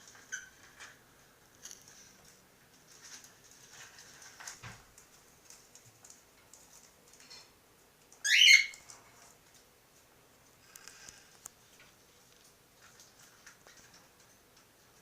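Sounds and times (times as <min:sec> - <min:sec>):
faint rustling: 0:00.0 - 0:07.6.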